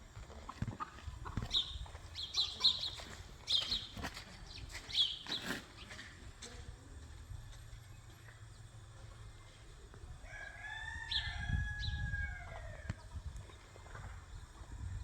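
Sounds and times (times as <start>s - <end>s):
rooster crowing: 10.2s - 12.9s.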